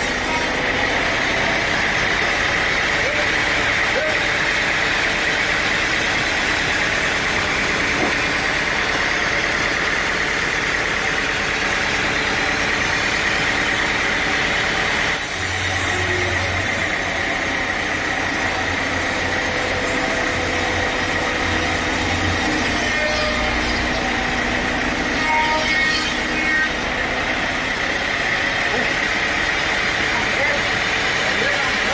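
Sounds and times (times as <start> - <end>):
sawmill machinery running: 0.0 - 31.9.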